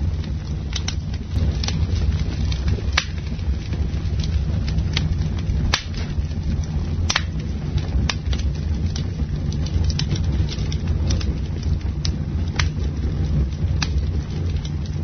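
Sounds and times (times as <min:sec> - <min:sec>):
burning wood crackling and popping: 0:00.0 - 0:15.0
campfire rumbling: 0:00.0 - 0:15.0.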